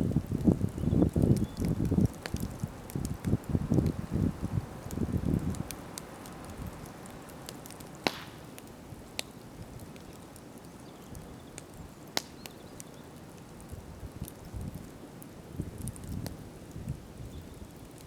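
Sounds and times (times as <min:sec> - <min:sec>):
campfire crackling: 0:00.0 - 0:18.0
sharp fire pops: 0:01.1 - 0:04.0, 0:04.9 - 0:10.1, 0:11.6 - 0:12.8.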